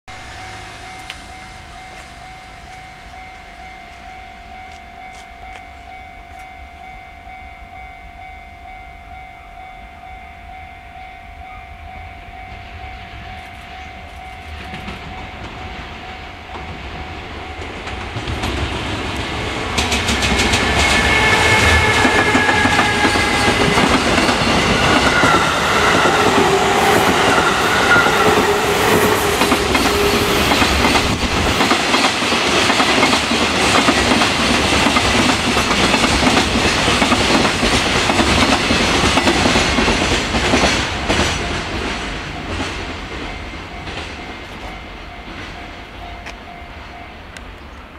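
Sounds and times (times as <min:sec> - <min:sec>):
electric trains passing: 0:00.1 - 0:47.9
whining tones falling in pitch: 0:19.4 - 0:31.6.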